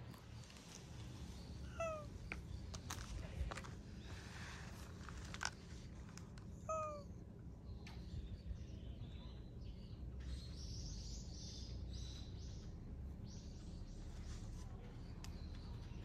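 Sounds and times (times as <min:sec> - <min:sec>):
bird chirping: 0:00.0 - 0:03.1, 0:06.6 - 0:16.0
low outdoor rumble: 0:00.0 - 0:16.0.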